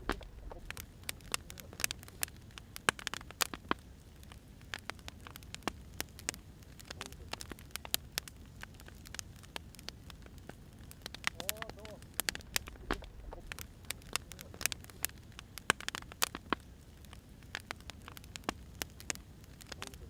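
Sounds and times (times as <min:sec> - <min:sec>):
firewood crackling and popping: 0:00.0 - 0:20.0.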